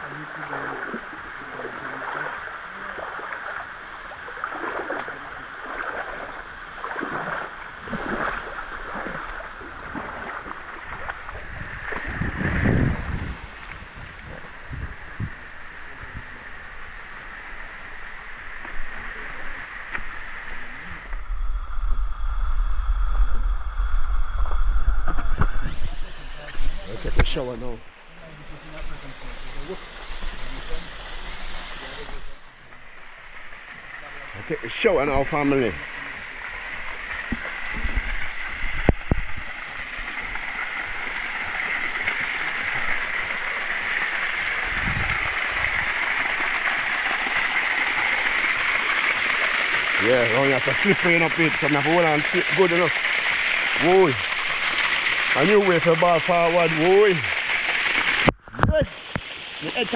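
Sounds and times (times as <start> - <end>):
wind buffeting on microphone: 9.8 - 16.4, 36.8 - 39.6, 44.5 - 46.2
waterfall rushing: 25.7 - 58.3.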